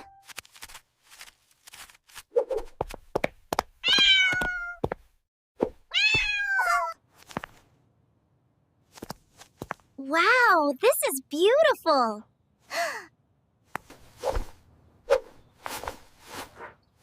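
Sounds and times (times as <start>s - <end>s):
kitten meowing: 5.9s - 7.0s.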